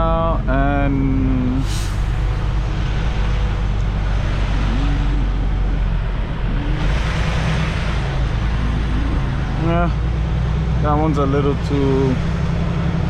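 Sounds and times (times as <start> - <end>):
diesel truck engine drone: 0.0 - 13.0
hiss of broad noise: 1.6 - 2.6.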